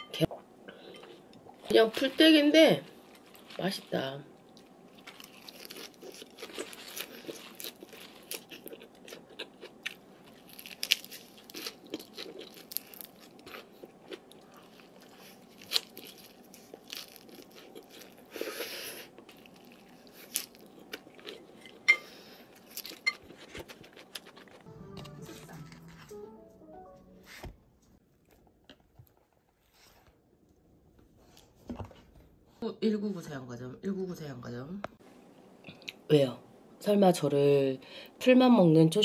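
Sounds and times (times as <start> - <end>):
crunching raw salad: 4.5 - 21.8.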